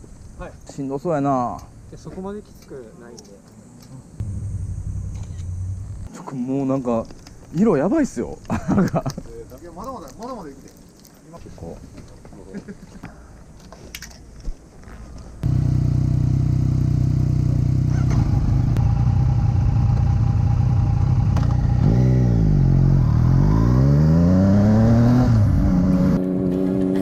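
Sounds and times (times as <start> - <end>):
motorcycle engine accelerating: 4.2 - 6.1, 15.4 - 27.0.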